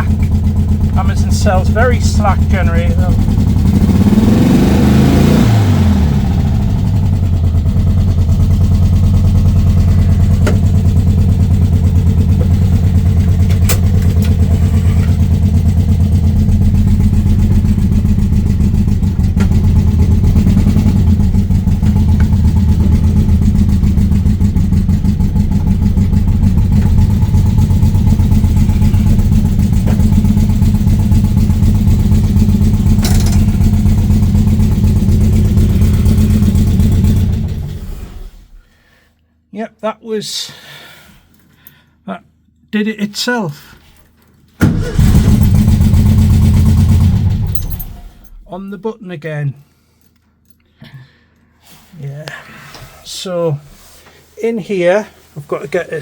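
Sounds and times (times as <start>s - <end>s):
car engine idling: 0.0s - 38.6s, 44.6s - 48.7s.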